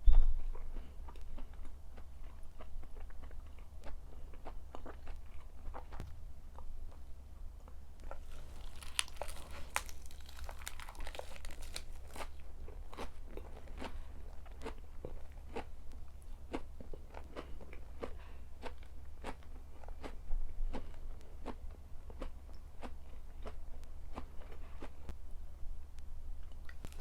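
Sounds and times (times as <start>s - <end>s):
chewing crisp food: 0.4s - 25.1s, 26.4s - 27.0s.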